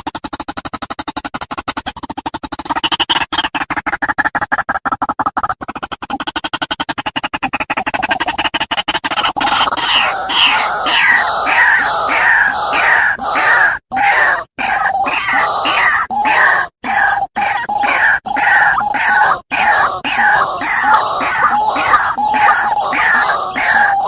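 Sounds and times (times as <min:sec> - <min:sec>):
waterhen croaking calls: 0:09.2 - 0:24.0.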